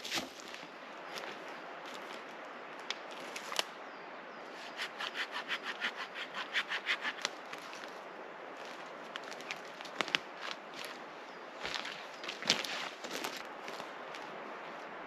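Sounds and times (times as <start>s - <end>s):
tool rasping wood: 4.8s - 7.3s.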